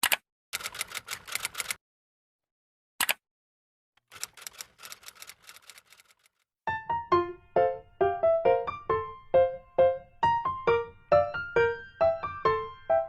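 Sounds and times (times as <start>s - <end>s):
quick sharp clicks: 0.0s - 1.8s, 3.0s - 3.2s.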